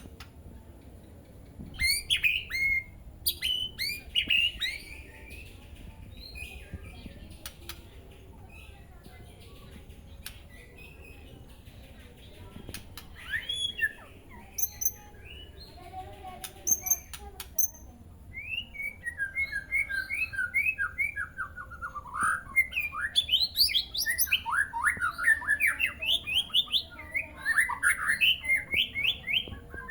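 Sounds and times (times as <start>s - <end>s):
bird whistling and chirping: 1.8s - 5.1s, 13.2s - 15.4s, 16.6s - 29.9s
sharp bird ticks: 7.3s - 8.2s, 9.9s - 11.6s, 12.2s - 13.9s, 14.5s - 15.4s, 16.4s - 17.9s.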